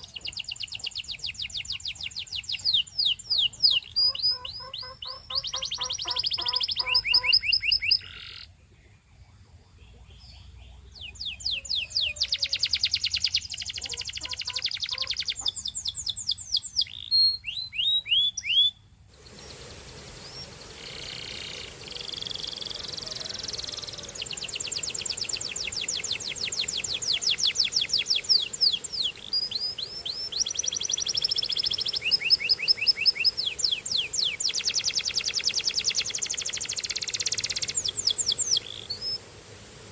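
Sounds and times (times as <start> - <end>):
canary singing trills: 0.0 - 18.8, 19.4 - 39.2
steady hiss: 18.8 - 39.9.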